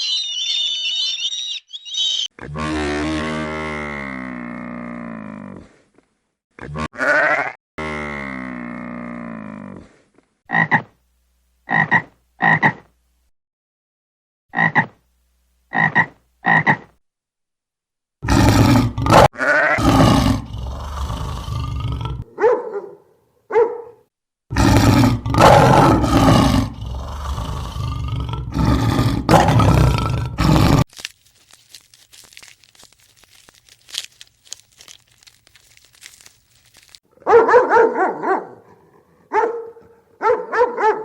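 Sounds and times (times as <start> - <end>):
animal calls: 0.0 - 2.3.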